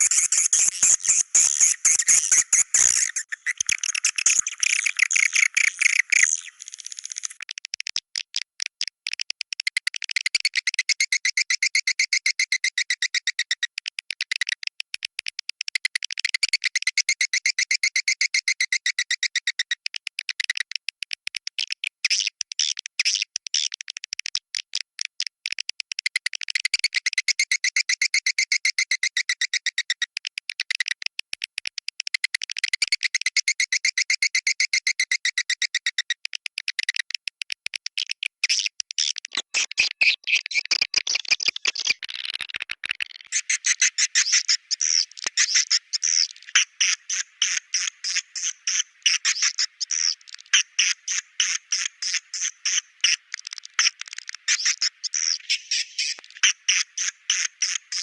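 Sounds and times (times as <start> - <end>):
swiftlet chirping clicks: 0.0 - 9.7.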